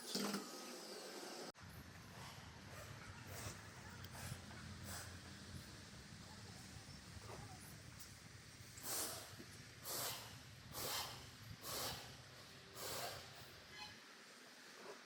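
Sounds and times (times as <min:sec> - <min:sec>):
short hissing bursts: 0:02.2 - 0:05.3, 0:08.6 - 0:13.8.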